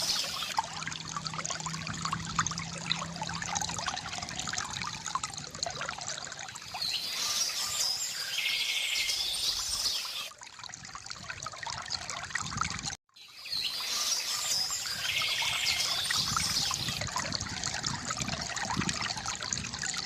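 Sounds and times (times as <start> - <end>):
birds chirping: 0.0 - 0.6, 6.7 - 10.3, 13.2 - 17.0
water trickling from fountain: 0.0 - 20.0.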